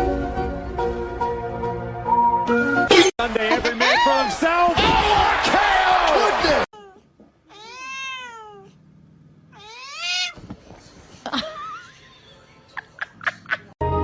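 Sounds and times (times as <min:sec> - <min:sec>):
cat meowing: 0:06.8 - 0:08.8, 0:09.5 - 0:10.4.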